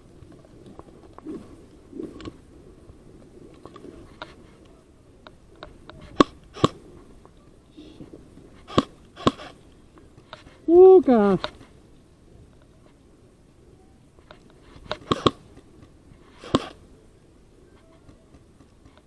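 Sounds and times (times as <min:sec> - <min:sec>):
airsoft gun shots: 0:06.1 - 0:06.8, 0:08.7 - 0:09.6, 0:14.9 - 0:15.4, 0:16.4 - 0:16.8.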